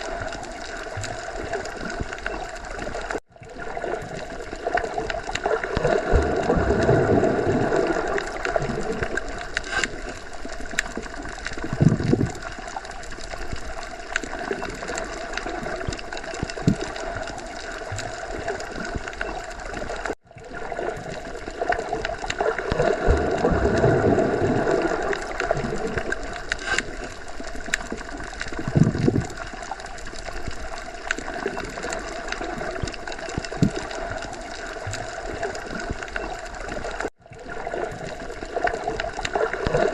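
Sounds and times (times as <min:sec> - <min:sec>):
underwater water wash: 0:00.0 - 0:39.9.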